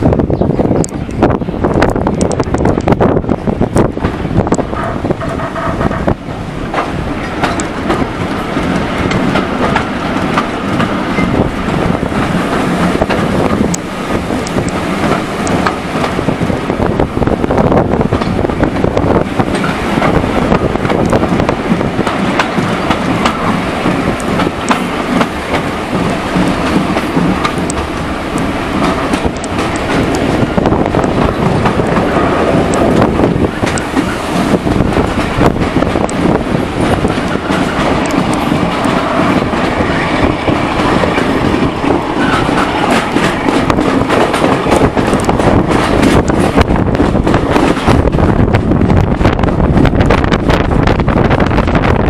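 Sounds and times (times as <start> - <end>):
train wheels rumbling on track: 0.0 - 52.0
clicks over rail joints: 4.0 - 11.4.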